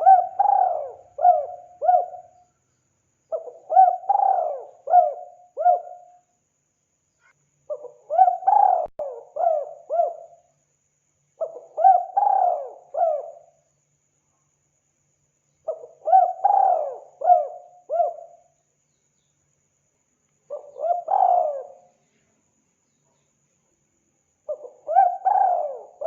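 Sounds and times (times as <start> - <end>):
dove cooing: 0.0 - 2.4, 3.3 - 6.1, 7.7 - 10.4, 11.4 - 13.5, 15.7 - 18.4, 20.5 - 21.9, 24.5 - 26.0.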